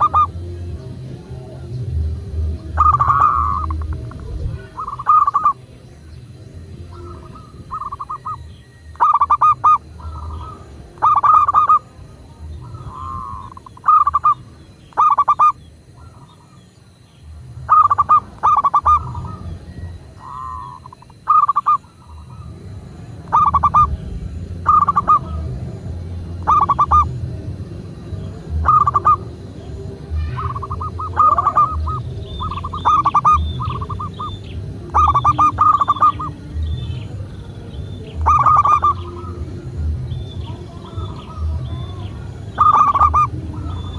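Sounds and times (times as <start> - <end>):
dove cooing: 0.0 - 0.6, 2.5 - 5.8, 6.8 - 16.8, 17.6 - 22.6, 23.2 - 27.3, 28.5 - 43.9
low background rumble: 0.0 - 43.9.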